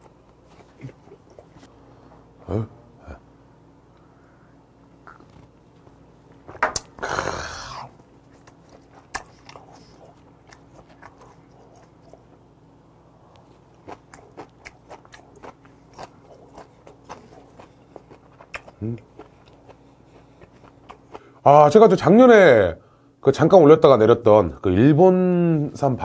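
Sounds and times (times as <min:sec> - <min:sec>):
wet chewing and lip smacks: 0:00.3 - 0:01.7, 0:07.9 - 0:12.4, 0:13.3 - 0:21.3.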